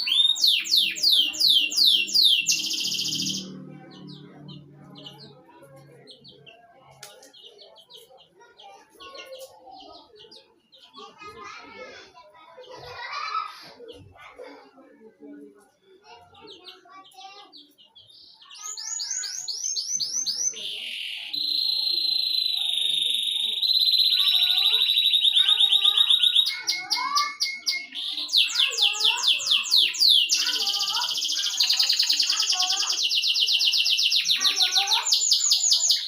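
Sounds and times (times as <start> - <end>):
songbird singing trills: 0.0 - 5.4, 17.6 - 36.0.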